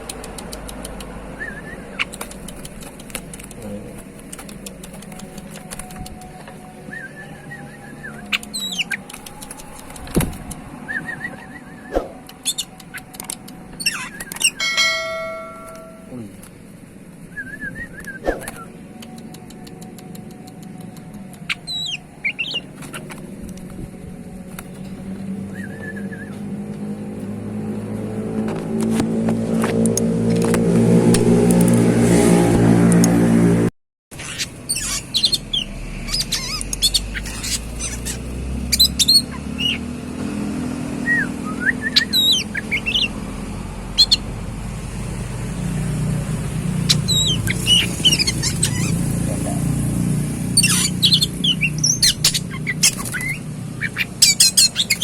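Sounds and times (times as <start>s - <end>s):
vehicle engine: 0.0s - 55.0s
bird chirps and whistles: 6.9s - 9.1s, 10.9s - 13.0s, 13.8s - 16.0s, 21.5s - 22.6s, 34.3s - 39.9s, 41.0s - 43.1s, 46.9s - 49.0s, 50.6s - 55.0s.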